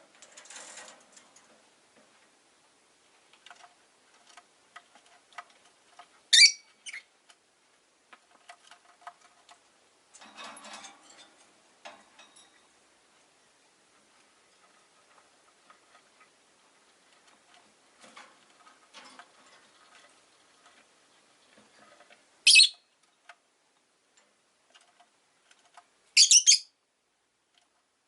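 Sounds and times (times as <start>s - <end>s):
faint clicks and taps: 3.2s - 6.2s, 8.1s - 12.5s, 27.5s - 27.9s
lovebird high-pitched chirps: 6.3s - 7.1s, 22.4s - 22.9s, 26.2s - 26.8s.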